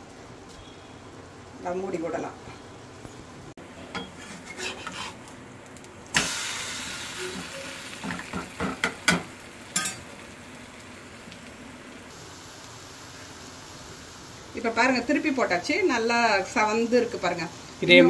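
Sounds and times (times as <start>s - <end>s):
metal spatula scraping pan: 4.0s - 5.2s
batter sizzling in oil: 4.0s - 18.0s.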